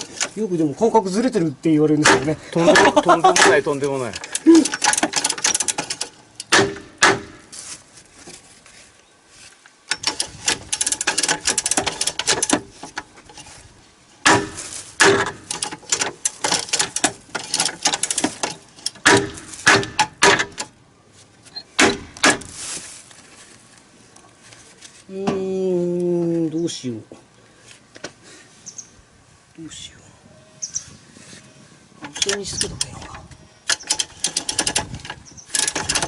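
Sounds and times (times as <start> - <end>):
metal tools and bolts clinking: 2.6 - 6.5, 9.9 - 13.5, 15.2 - 20.7, 32.1 - 36.0.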